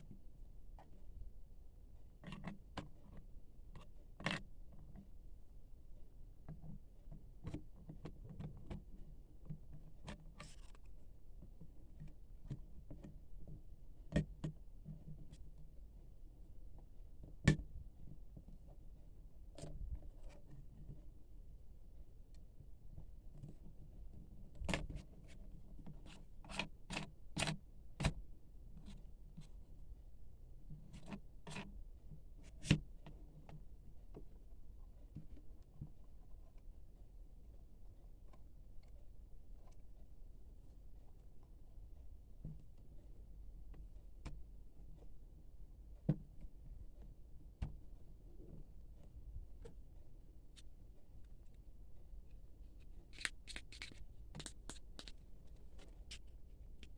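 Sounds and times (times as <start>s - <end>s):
packaging taps and clicks: 53.1s - 55.2s.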